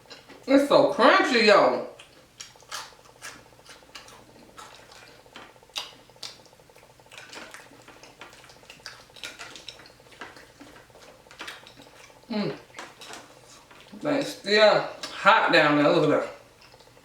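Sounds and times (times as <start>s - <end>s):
person chewing crispy fish: 2.0s - 14.0s, 16.5s - 17.0s.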